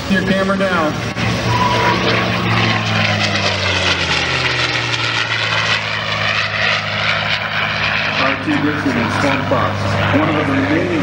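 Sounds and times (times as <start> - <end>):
propeller airplane flyby: 0.0 - 11.0.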